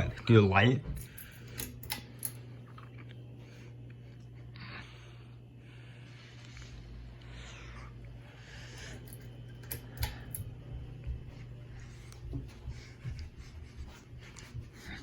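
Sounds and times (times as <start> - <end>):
steady low hum: 0.0 - 15.0
pull-chain switch clicking: 1.5 - 2.4.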